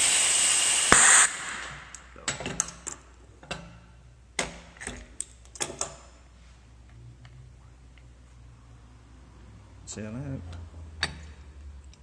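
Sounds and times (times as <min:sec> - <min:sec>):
compressed air blast: 0:00.0 - 0:02.2.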